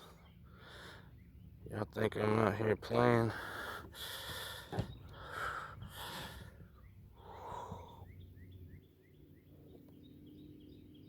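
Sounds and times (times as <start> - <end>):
faint breathing: 0.0 - 1.2, 3.2 - 8.2
small bird chirping: 6.6 - 11.0.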